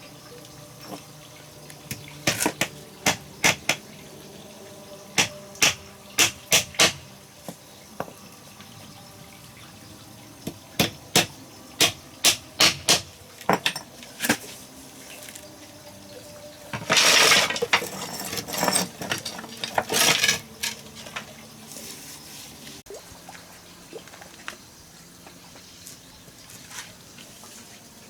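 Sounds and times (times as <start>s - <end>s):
sharp clinks and knocks: 16.8s - 21.0s.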